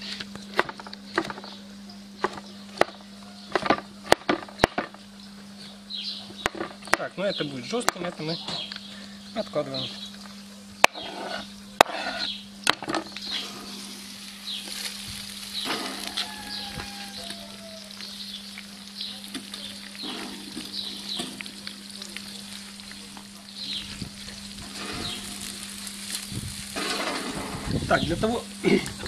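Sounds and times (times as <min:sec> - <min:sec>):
mushrooms sizzling in a wok: 0:08.3 - 0:29.0.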